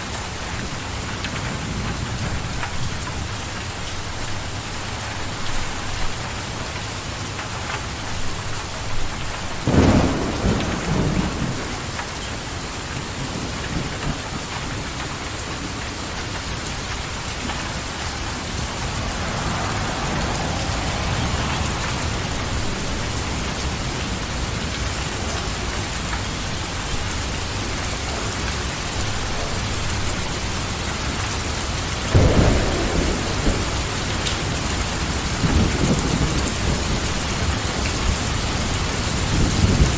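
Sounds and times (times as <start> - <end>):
steady rain: 0.0 - 39.9
thunder rumbling: 8.2 - 27.7, 32.1 - 39.9.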